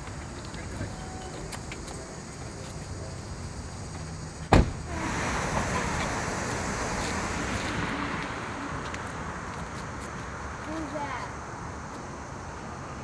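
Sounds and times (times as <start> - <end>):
street traffic noise: 0.0 - 13.0
van door slamming: 4.5 - 4.9.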